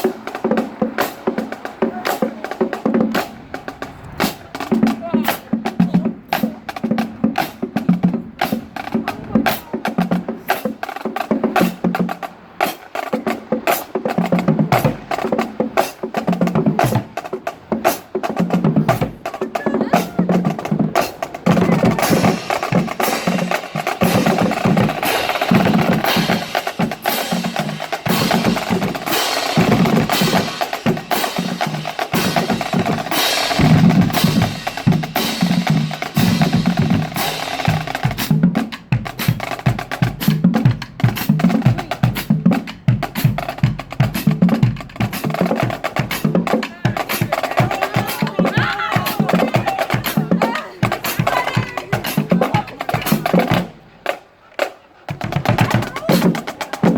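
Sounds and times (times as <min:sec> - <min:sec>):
snare drum strikes: 0:20.6 - 0:38.6
bass drum hits: 0:33.5 - 0:35.2.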